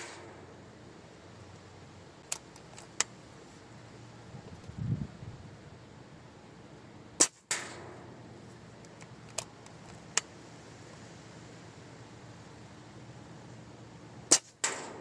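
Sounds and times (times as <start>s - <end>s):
air rifle shot: 0.0s - 0.5s, 7.2s - 8.1s, 14.3s - 15.0s.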